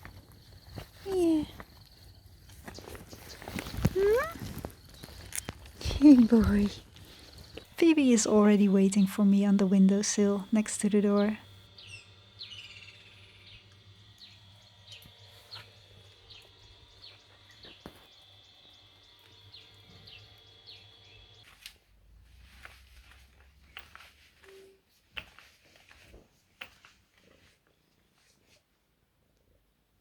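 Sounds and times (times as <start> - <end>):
faint clicks and rustles: 0.0 - 7.9, 21.4 - 29.5
bird chirping: 2.5 - 21.5.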